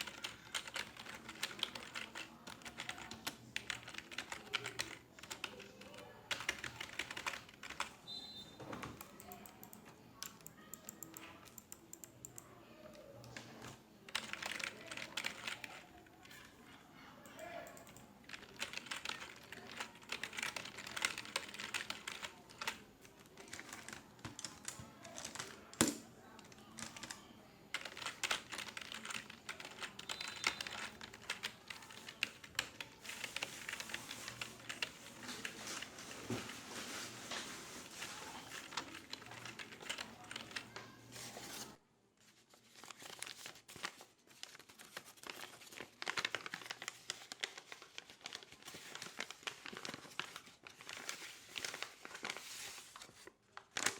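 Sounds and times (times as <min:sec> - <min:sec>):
computer keyboard typing: 0:00.0 - 0:08.0, 0:08.8 - 0:12.5, 0:13.2 - 0:16.4, 0:17.2 - 0:35.9, 0:38.0 - 0:40.9.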